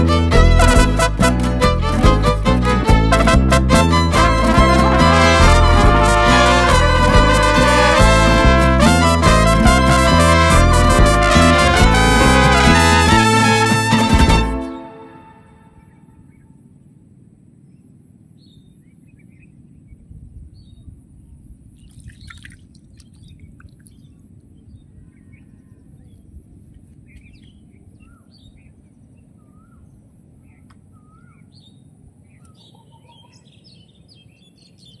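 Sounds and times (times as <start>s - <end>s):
low outdoor rumble: 0.0s - 14.7s
small birds chirping: 21.7s - 26.4s, 27.0s - 35.0s.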